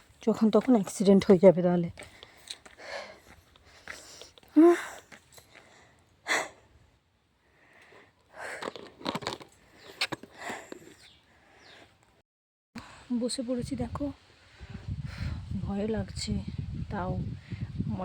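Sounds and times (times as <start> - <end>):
shoes crunching on gravel: 0.0 - 5.3.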